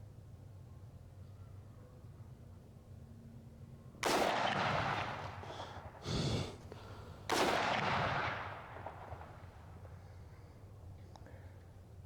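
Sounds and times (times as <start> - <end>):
rifle shots: 4.0 - 5.6, 7.3 - 9.7.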